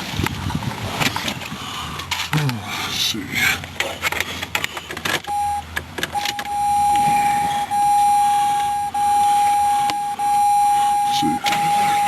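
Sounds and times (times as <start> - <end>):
dashboard warning tone: 5.3 - 12.0.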